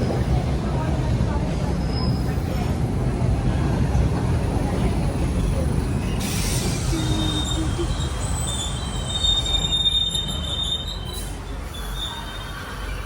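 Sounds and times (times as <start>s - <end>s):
train rumbling on rails: 0.0s - 13.0s
train wheels squealing: 1.8s - 2.6s, 5.8s - 13.0s.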